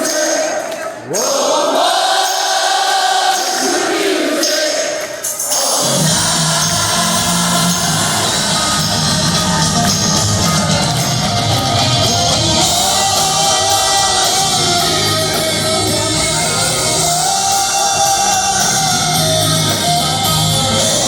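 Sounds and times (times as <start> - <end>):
live rock band playing: 5.8 - 21.0.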